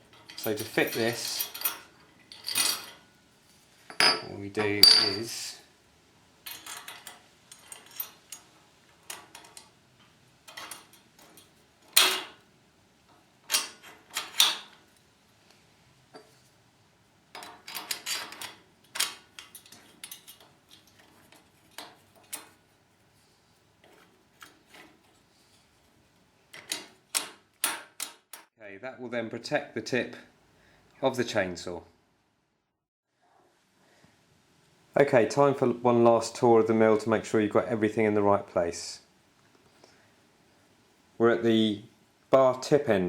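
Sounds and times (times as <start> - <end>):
metal parts clinking and knocking: 0.0 - 3.1, 3.9 - 5.4, 6.4 - 12.4, 13.4 - 14.9, 17.3 - 22.6.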